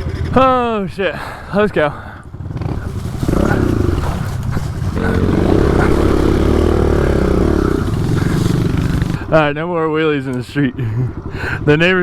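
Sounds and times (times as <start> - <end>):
small engine revving hard: 2.6 - 9.3.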